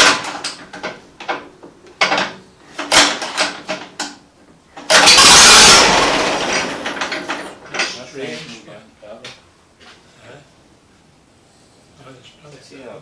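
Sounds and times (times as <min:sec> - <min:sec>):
metal tools clanking: 0:04.9 - 0:08.3
loud rush of noise: 0:05.1 - 0:07.6.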